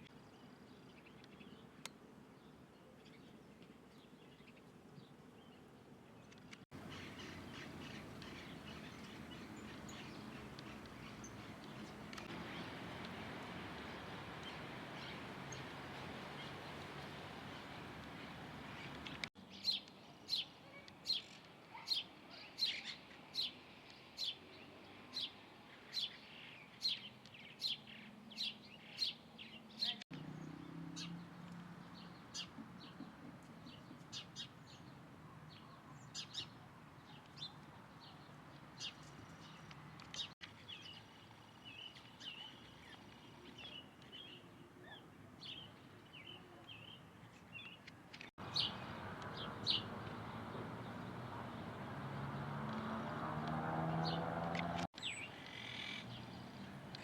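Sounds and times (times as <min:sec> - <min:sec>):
birds twittering: 0:06.7 - 0:20.4, 0:38.8 - 0:57.0.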